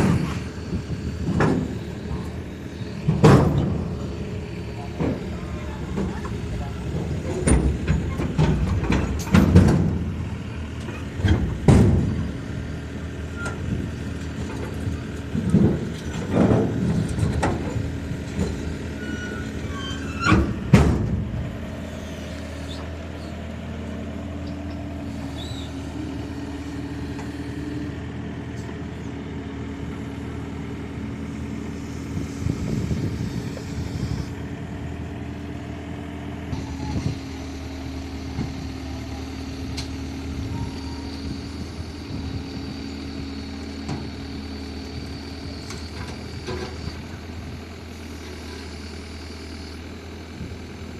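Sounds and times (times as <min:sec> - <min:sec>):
metal knocks and clanks: 0:00.0 - 0:02.4, 0:03.0 - 0:04.2, 0:04.8 - 0:10.2, 0:10.8 - 0:12.3, 0:14.4 - 0:21.4
excavator engine running: 0:00.0 - 0:50.9.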